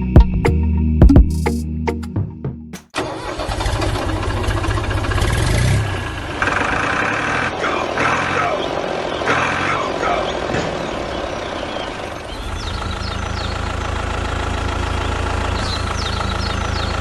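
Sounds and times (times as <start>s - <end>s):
music: 0.0s - 2.9s.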